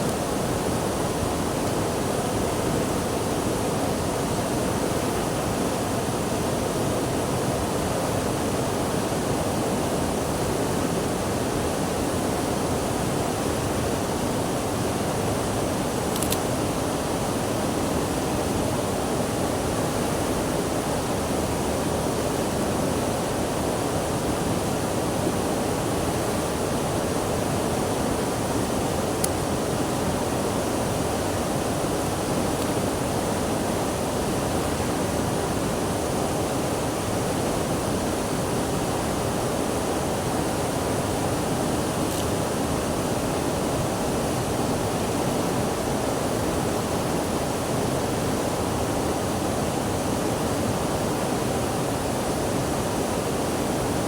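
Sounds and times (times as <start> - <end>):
rushing water: 0.0 - 54.0.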